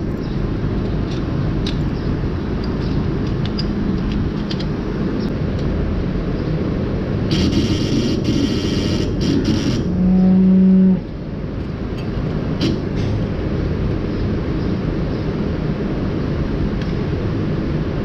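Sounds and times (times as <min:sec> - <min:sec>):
machinery rumble: 0:00.0 - 0:18.0
loud buzz: 0:07.2 - 0:11.1.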